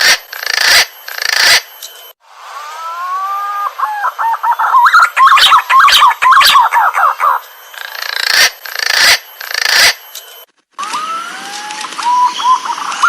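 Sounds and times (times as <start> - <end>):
pigeon whistling calls: 2.8 - 7.4, 10.8 - 13.0.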